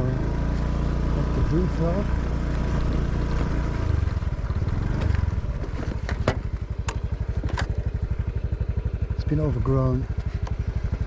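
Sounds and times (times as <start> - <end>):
motorcycle engine putter: 2.4 - 9.0, 10.0 - 11.0.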